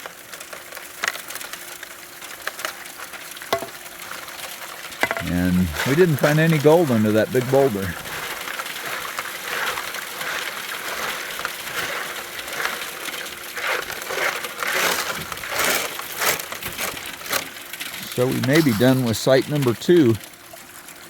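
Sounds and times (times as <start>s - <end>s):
gravel and rock crunching: 4.9s - 20.2s.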